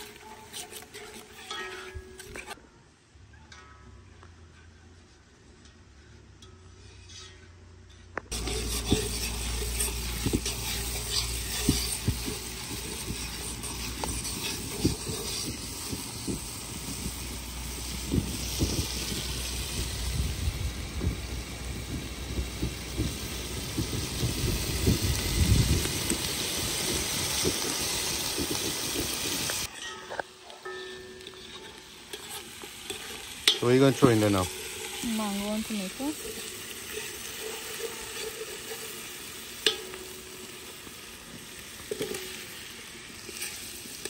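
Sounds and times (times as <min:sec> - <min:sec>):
masala sizzling in hot oil: 0:00.0 - 0:02.6, 0:08.3 - 0:44.0.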